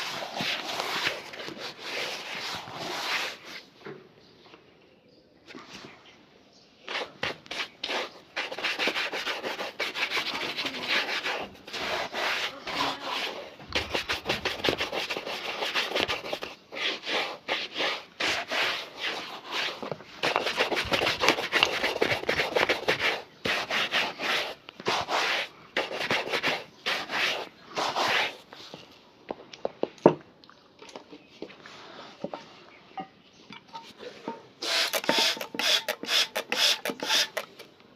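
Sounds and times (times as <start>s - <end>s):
leather shoe being rubbed: 0.0s - 3.7s, 6.9s - 28.5s, 34.6s - 37.4s.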